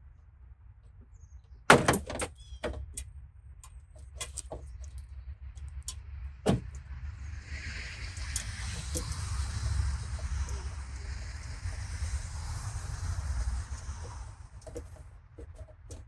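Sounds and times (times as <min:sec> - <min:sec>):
sharp clunks: 0:01.7 - 0:02.9, 0:06.5 - 0:06.8
hiss: 0:07.2 - 0:14.6.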